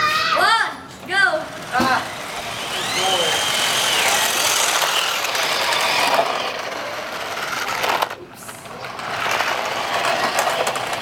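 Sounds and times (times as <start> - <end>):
toy cars electric motors whirring: 1.1 - 11.0.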